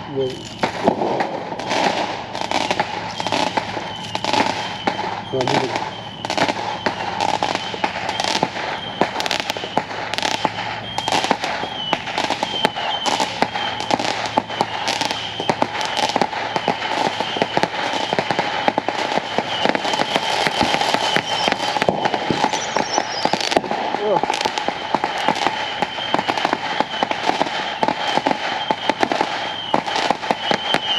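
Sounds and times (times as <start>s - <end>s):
fireworks crackling pops: 0.0s - 30.9s
thin high whistling tone: 0.1s - 0.8s, 1.6s - 24.2s, 24.8s - 30.9s.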